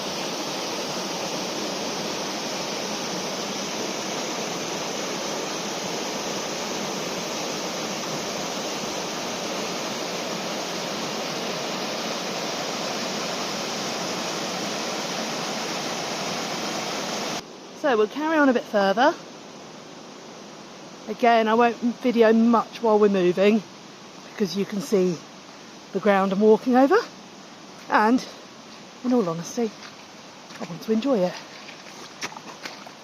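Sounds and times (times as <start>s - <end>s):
waterfall pouring and splashing: 0.0s - 17.6s, 27.7s - 33.0s.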